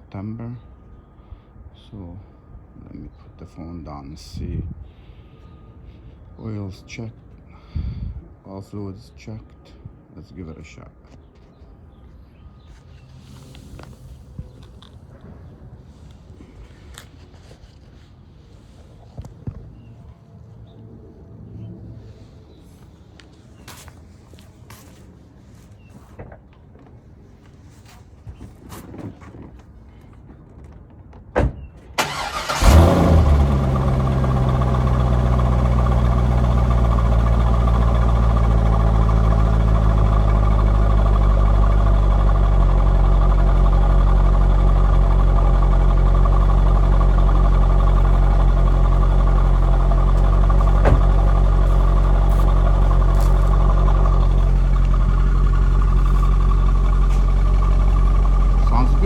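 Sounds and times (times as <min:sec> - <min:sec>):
car engine starting and idling: 0:32.0 - 0:59.0.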